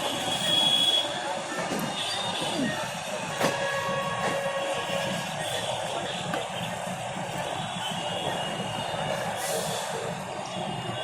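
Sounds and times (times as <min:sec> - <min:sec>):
train rumbling on track: 0:00.0 - 0:11.0.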